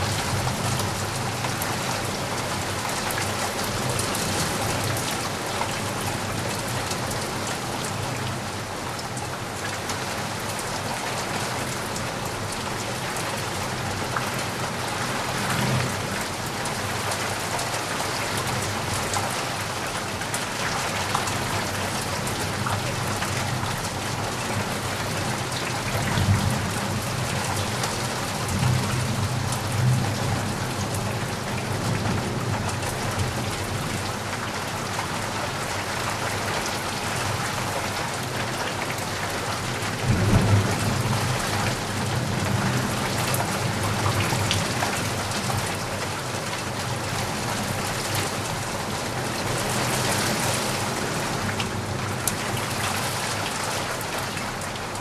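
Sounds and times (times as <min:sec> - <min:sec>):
steady rain: 0:00.0 - 0:55.0
low thunder rumbles: 0:40.0 - 0:43.1.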